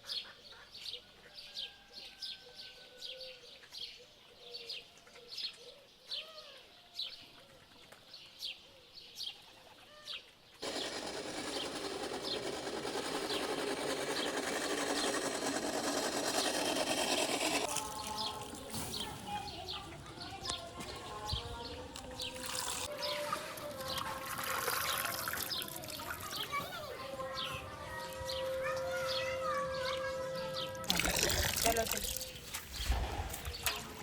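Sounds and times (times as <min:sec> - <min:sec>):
loud steady rushing noise: 0:10.6 - 0:17.7
birds chirping: 0:16.2 - 0:34.0.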